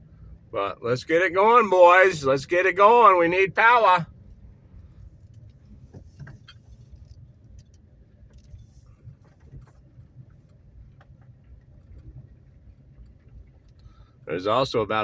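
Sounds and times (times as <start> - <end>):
car engine idling: 0.0 - 6.8.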